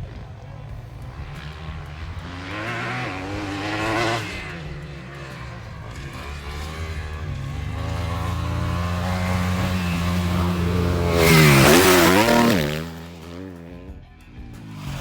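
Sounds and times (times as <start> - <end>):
motocross bike engine revving: 0.0 - 15.0.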